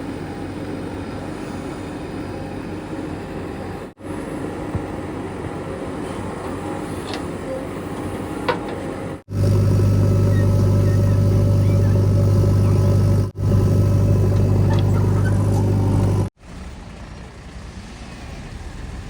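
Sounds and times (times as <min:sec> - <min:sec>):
diesel engine rumbling: 0:00.0 - 0:19.0.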